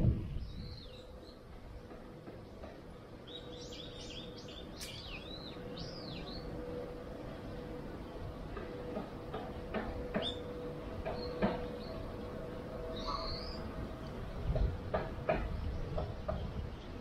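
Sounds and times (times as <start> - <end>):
faint constant hum: 0.0 - 17.0
bird chirping and whistling: 13.0 - 13.6.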